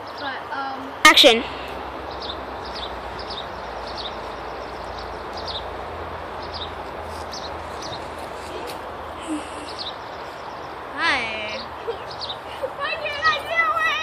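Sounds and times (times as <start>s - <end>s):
outdoor background hiss: 0.0s - 14.0s
small bird chirping: 2.1s - 5.7s, 6.4s - 10.8s.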